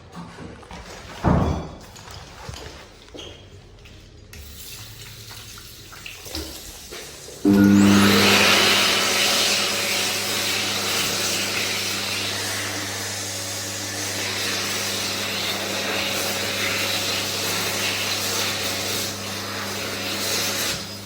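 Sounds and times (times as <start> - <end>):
hand dryer motor hum: 6.9 - 21.0
hand dryer air rush: 7.4 - 21.0.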